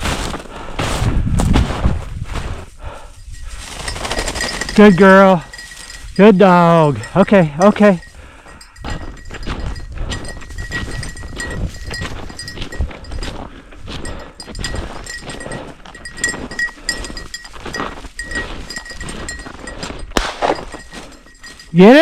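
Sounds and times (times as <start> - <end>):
footsteps in snow: 0.0 - 6.2, 8.0 - 22.0
heavy breathing: 0.3 - 1.2, 2.4 - 3.8, 8.0 - 11.6, 12.3 - 20.1, 20.7 - 21.7
dog bell tinkling: 3.1 - 22.0.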